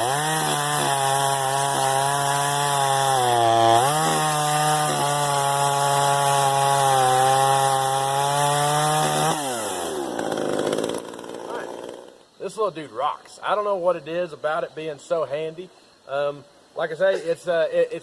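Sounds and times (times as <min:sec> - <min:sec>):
chainsaw cutting wood: 0:00.0 - 0:12.3.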